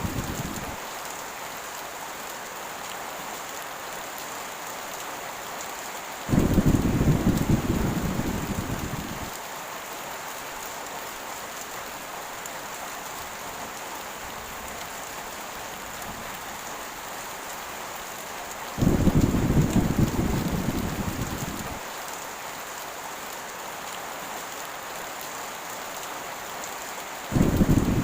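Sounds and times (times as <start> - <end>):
thunder rumbling: 0.0 - 0.8, 6.3 - 9.3, 18.8 - 21.8, 27.3 - 28.0
heavy rain hissing: 0.0 - 4.1, 5.2 - 25.0, 26.2 - 28.0
thunder peal: 6.3 - 9.2, 18.8 - 21.7, 27.4 - 28.0.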